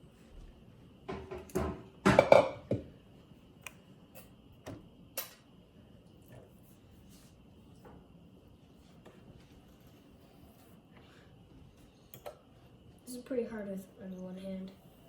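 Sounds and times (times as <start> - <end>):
utensil knocking on cooking sheet: 1.1 - 2.9.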